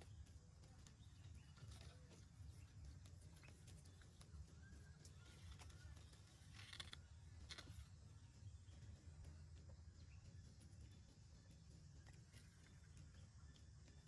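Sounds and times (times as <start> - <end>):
brief rustle: 5.2 - 7.9.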